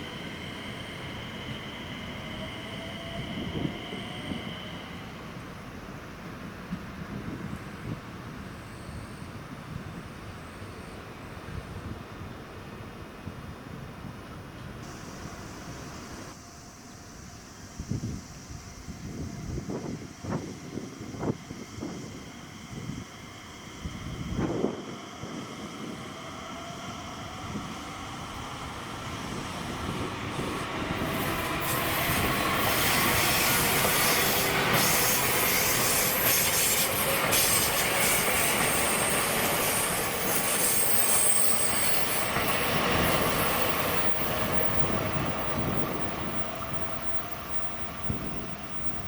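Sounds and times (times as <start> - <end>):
train wheels rumbling: 17.9 - 49.0
high wheel squeal: 26.6 - 49.0.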